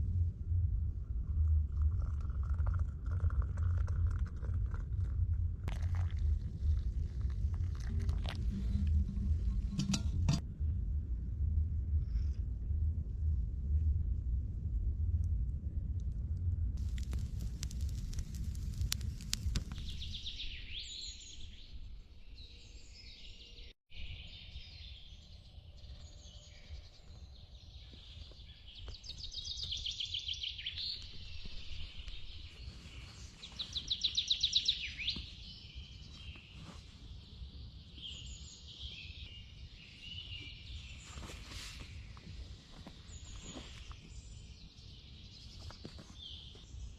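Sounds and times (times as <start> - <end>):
low outdoor rumble: 0.0 - 20.2
songbirds singing: 19.7 - 46.9.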